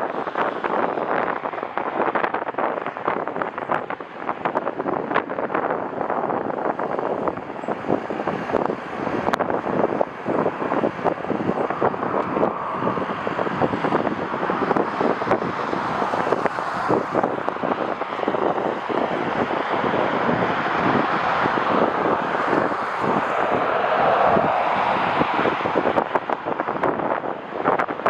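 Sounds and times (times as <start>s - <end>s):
gusty wind buffeting microphone: 0.0s - 28.0s.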